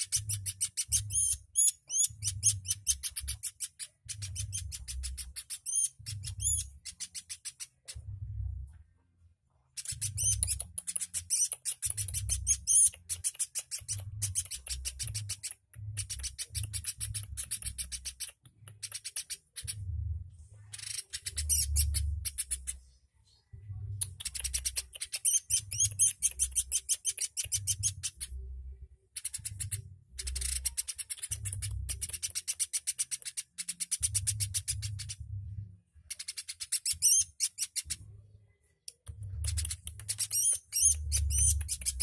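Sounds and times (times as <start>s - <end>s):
bird ticking trill: 0.0s - 7.9s, 24.0s - 28.3s, 39.4s - 42.0s
low rumble: 8.0s - 9.0s, 19.7s - 20.7s, 34.8s - 35.9s.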